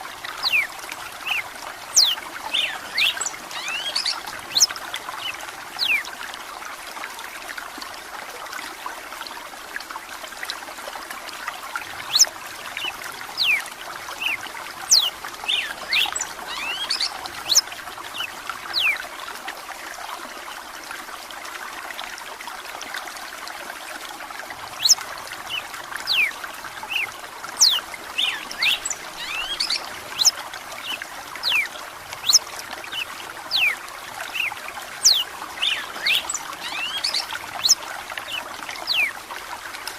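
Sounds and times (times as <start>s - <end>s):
trickle of running water: 0.0s - 39.9s
bird singing whistled notes: 26.9s - 30.3s.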